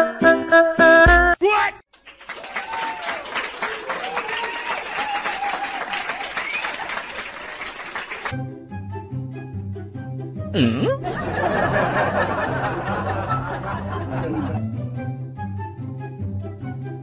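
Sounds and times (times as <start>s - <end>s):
music: 0.0s - 1.4s, 8.3s - 17.0s
crowd applauding and cheering: 2.0s - 8.4s.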